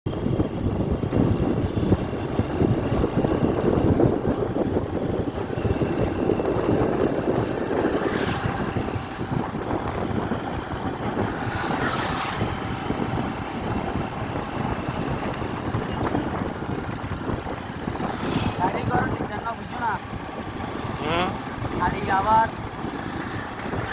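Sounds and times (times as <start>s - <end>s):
highway vehicle rumble: 0.0s - 23.9s
wind on microphone: 0.1s - 23.9s
hissing whooshes: 11.1s - 13.1s, 17.6s - 19.1s.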